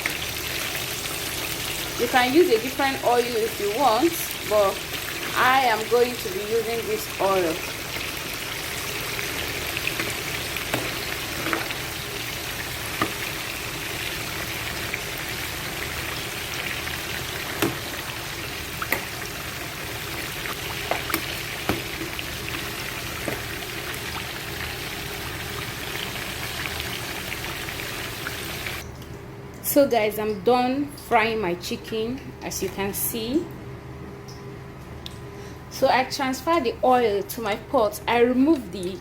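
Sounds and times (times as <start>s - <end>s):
chicken frying in oil: 0.0s - 28.8s.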